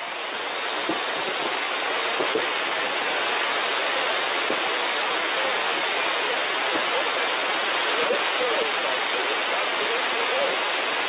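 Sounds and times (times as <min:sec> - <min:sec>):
radio static hiss: 0:00.0 - 0:11.0
faint unintelligible voice: 0:03.8 - 0:10.8.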